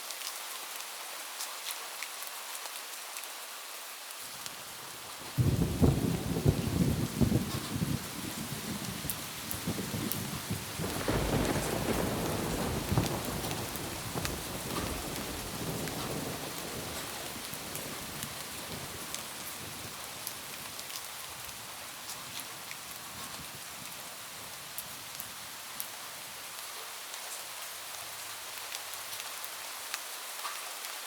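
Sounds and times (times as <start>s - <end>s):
steady rain: 0.0s - 31.0s
thunder rolling: 5.4s - 20.3s.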